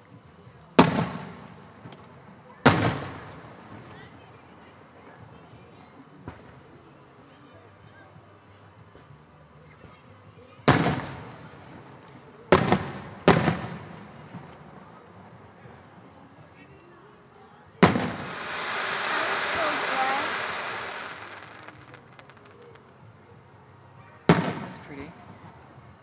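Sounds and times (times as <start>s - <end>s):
firework shells booming: 12.6s - 14.0s, 17.8s - 22.8s
insects chirping: 17.9s - 23.6s.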